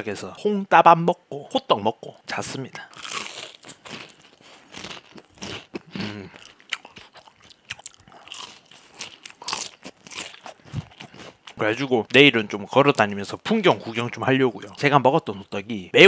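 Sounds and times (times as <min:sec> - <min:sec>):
crunching and chewing fried food: 0:02.8 - 0:12.2.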